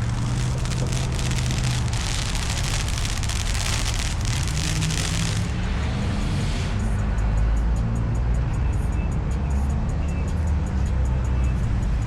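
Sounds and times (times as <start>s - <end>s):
crackling hiss: 0.0s - 5.8s.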